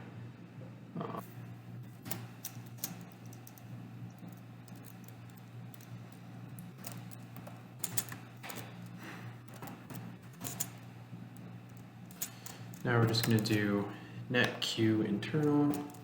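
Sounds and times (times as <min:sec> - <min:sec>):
steady low hum: 0:00.0 - 0:16.0
computer keyboard typing: 0:13.0 - 0:13.7.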